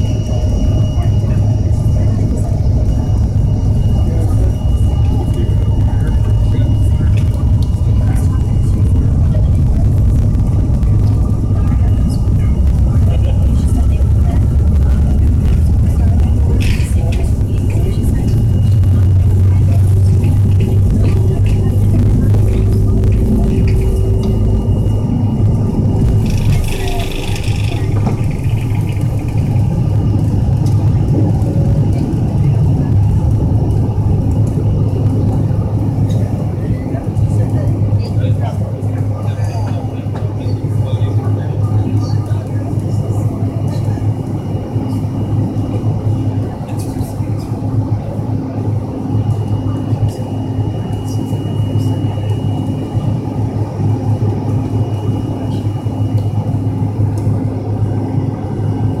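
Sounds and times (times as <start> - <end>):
thin high whine: 0.0 - 33.0
jet engine rumble in cabin: 0.0 - 59.0.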